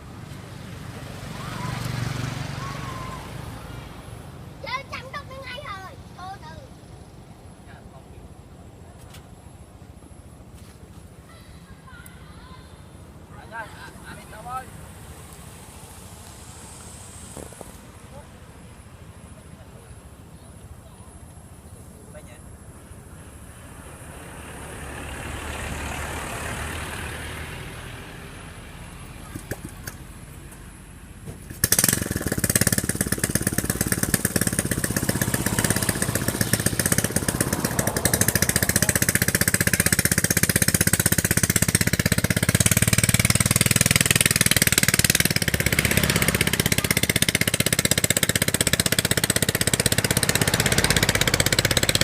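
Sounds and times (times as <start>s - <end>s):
passing rush of noise: 0.0s - 5.2s, 12.9s - 20.3s, 22.5s - 29.3s, 30.1s - 52.0s
motor engine running with pulsing note: 31.6s - 52.0s.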